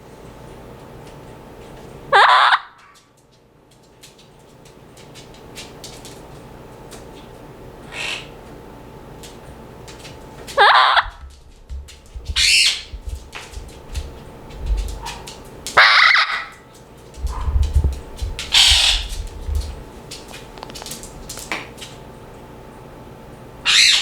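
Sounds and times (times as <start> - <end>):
parrots squawking: 2.2 - 2.7, 7.9 - 8.4, 12.4 - 12.9, 15.8 - 16.6, 18.5 - 19.1, 23.6 - 24.0
low bumping and rustling: 11.0 - 15.6, 17.2 - 21.8.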